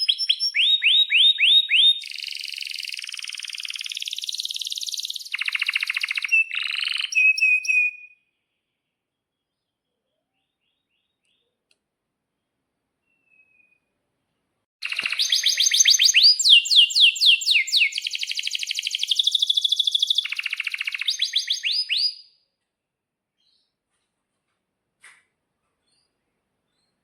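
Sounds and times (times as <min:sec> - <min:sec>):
canary singing: 0:00.0 - 0:08.3, 0:14.8 - 0:22.3.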